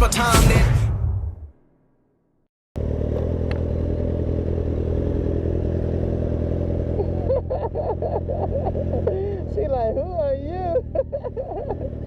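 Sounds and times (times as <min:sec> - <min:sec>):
motorcycle engine running: 0:02.8 - 0:12.0.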